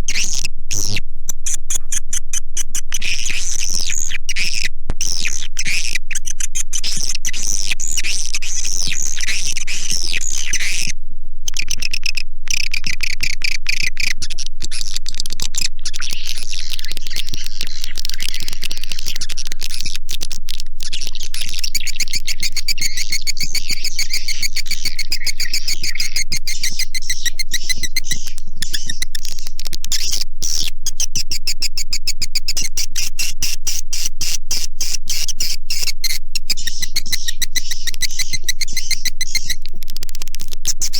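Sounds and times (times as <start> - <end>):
swiftlets twittering: 21.5 - 39.8.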